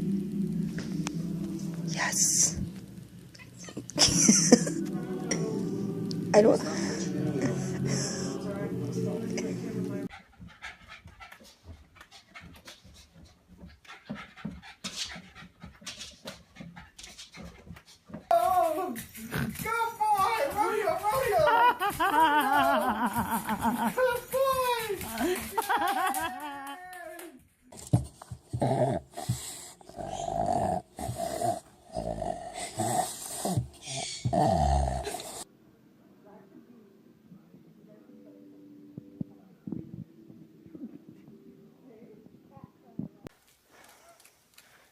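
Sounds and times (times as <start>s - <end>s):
dog panting: 10.0s - 18.3s, 27.8s - 31.9s.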